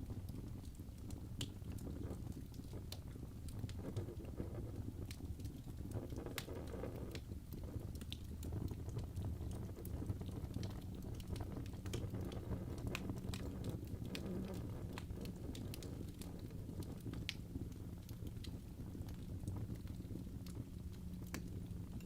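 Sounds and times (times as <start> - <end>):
logs crackling and popping: 0.0 - 22.0
low rush of flames: 0.0 - 22.0.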